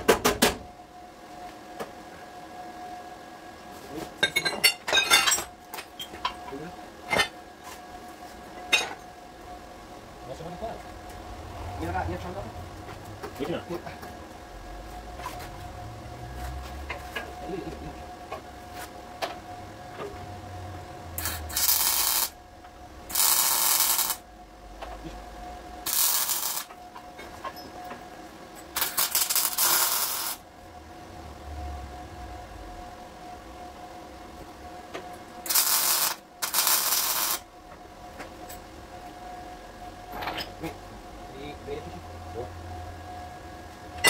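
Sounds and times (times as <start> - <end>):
faint steady tone: 36.9 - 44.0.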